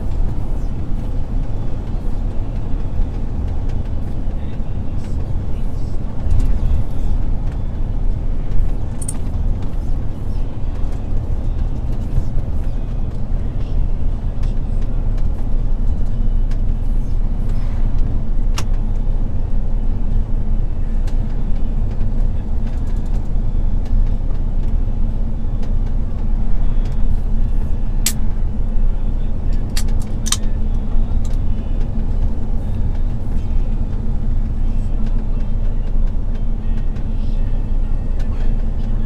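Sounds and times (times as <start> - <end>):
diesel truck engine rumbling: 0.0 - 39.0
road noise: 0.0 - 39.0
sharp click: 29.6 - 30.5.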